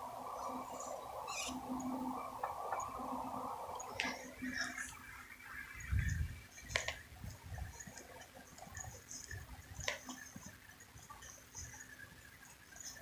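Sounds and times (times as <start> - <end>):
quiet city street ambience: 0.0 - 13.0
sharp clicks: 6.7 - 11.2.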